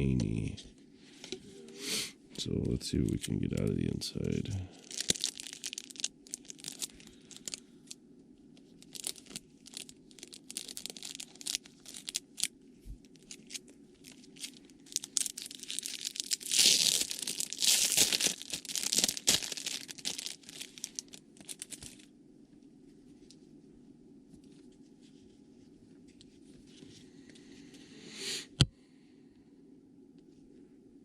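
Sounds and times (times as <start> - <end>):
plastic wrapping crinkling: 2.9 - 8.0, 8.7 - 22.1.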